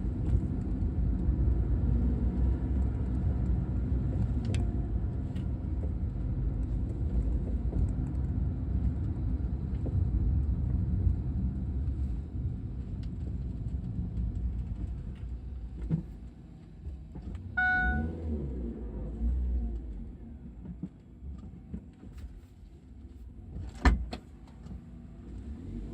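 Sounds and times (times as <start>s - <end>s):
car road rumble: 0.0s - 25.9s
short beep: 17.6s - 18.4s.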